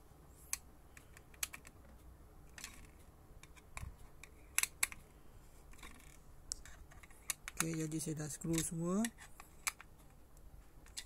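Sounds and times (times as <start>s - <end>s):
screwdriver clicking on plastic: 7.0s - 9.9s.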